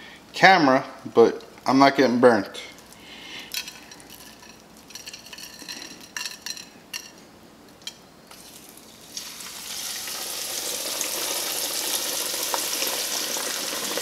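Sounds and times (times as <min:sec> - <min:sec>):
frying oil sizzling: 0:08.3 - 0:14.0.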